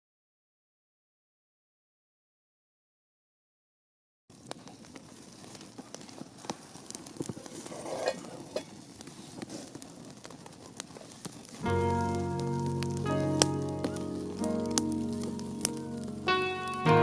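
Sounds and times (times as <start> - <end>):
wood fire crackling: 4.3 - 17.0.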